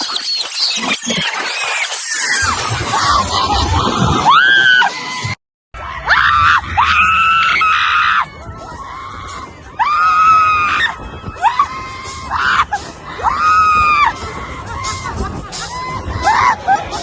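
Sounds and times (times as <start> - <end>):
riders screaming: 6.0 - 17.0.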